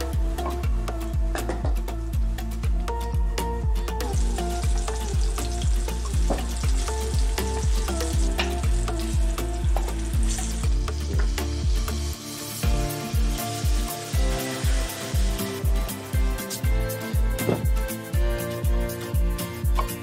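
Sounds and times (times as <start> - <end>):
background music with steady beat: 0.0 - 20.0
meatballs sizzling in oil: 4.1 - 17.4.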